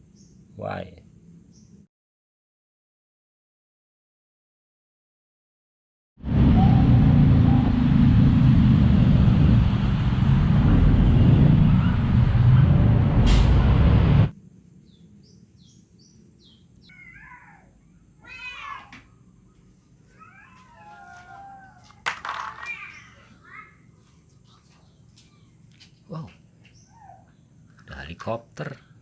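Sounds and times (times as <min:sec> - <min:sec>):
heavy vehicle engine running: 0:06.2 - 0:14.3
wavering meow-like cries: 0:16.9 - 0:19.2, 0:20.1 - 0:23.7.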